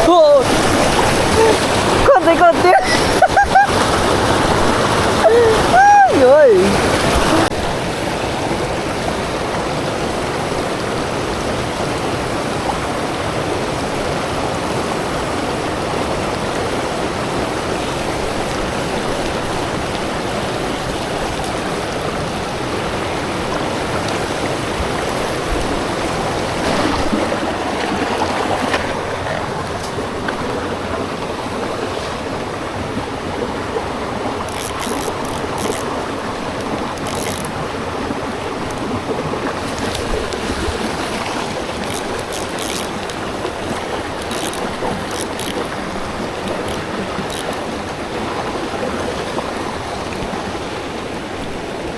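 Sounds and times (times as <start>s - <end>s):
stream flowing over rocks: 0.0s - 51.9s.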